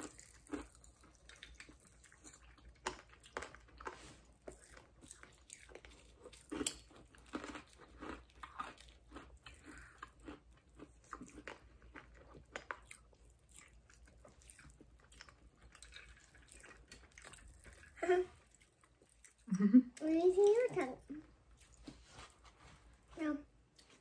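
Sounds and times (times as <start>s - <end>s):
chewing and crunching candy: 0.0s - 22.0s.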